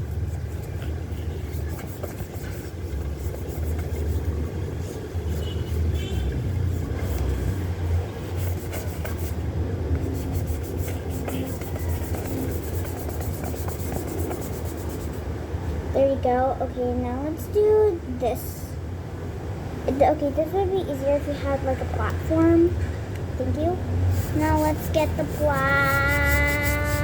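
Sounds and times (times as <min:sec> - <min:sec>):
toothbrush scrubbing plastic case: 0:00.1 - 0:05.8, 0:10.2 - 0:15.1, 0:24.2 - 0:27.0.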